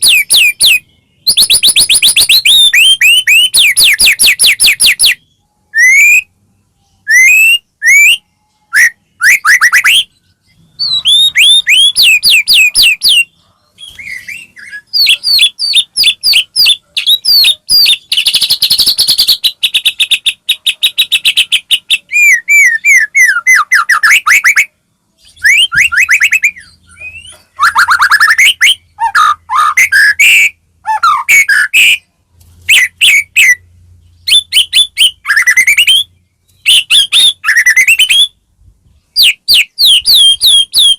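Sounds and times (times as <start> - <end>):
bird singing whistles and trills: 0.0 - 32.1, 32.7 - 40.9.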